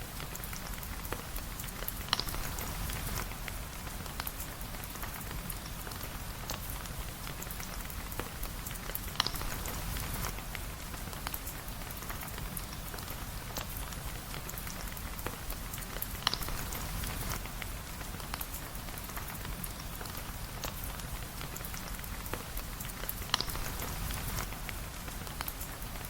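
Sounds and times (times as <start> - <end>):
rain pattering: 0.0 - 26.0.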